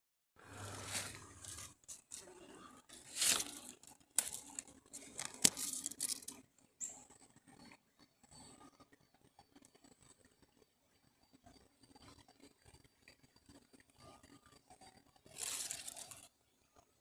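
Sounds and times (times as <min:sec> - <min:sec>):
irregular rustling and crackling: 0:00.6 - 0:06.6, 0:15.2 - 0:16.3.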